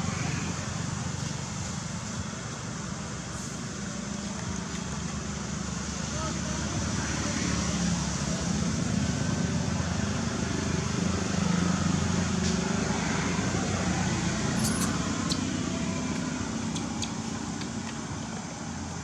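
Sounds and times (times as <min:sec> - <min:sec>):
steady mechanical rumble: 0:12.3 - 0:19.0.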